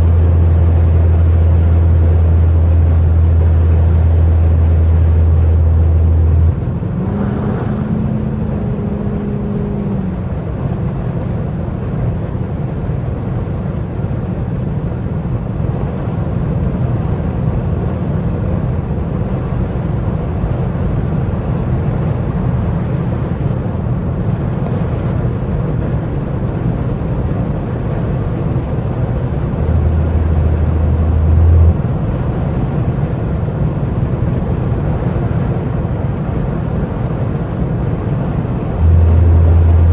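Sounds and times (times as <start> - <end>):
deep low drone: 0.0 - 12.5, 28.5 - 34.6, 37.7 - 39.9
car engine and exhaust: 0.0 - 39.9
road noise: 0.0 - 39.9.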